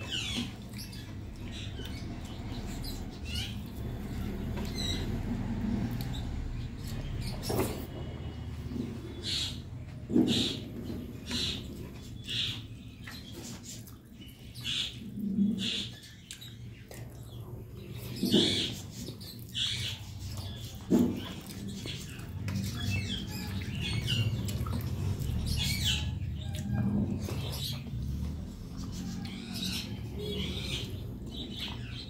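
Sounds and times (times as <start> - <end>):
wet chewing and lip-smacking: 16.1 - 17.3, 20.4 - 25.5.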